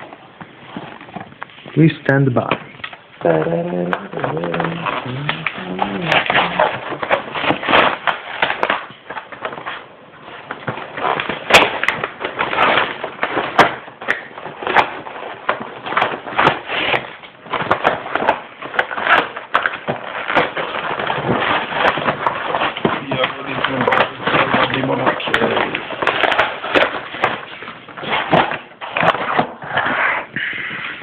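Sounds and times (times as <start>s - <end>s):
packaging crackling and rustling: 0.0s - 31.0s.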